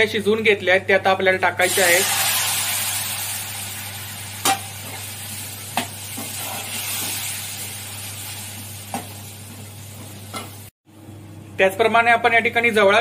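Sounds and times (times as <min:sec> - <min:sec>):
seeds sizzling in hot oil: 0:01.6 - 0:10.7.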